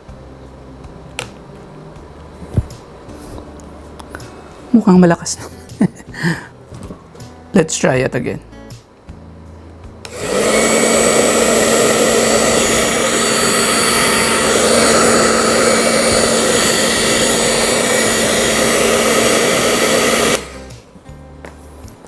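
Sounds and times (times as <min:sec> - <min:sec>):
hair dryer running: 0:10.1 - 0:20.8.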